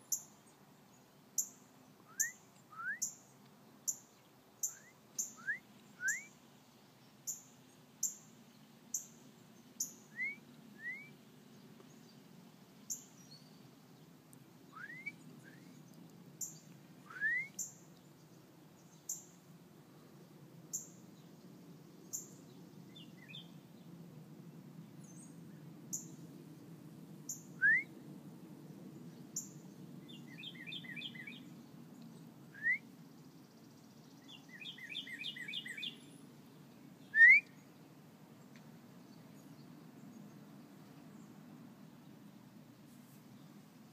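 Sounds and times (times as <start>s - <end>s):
rising bird whistles: 2.1s - 3.2s, 4.7s - 6.4s, 10.1s - 11.2s, 14.7s - 15.8s, 17.1s - 17.7s, 27.6s - 27.9s, 32.5s - 32.8s, 37.1s - 37.6s.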